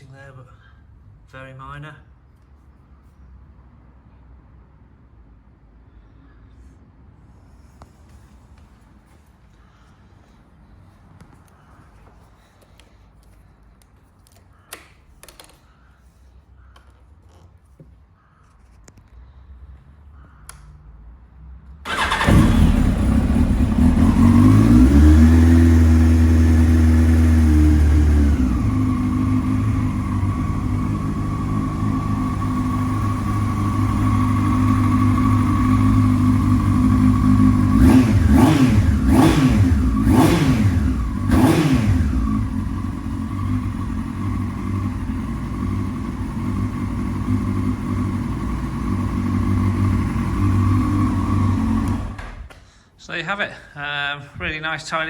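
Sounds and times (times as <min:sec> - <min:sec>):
motorcycle engine starting and idling: 0:21.8 - 0:52.7
motorcycle throttle blips: 0:21.9 - 0:52.6.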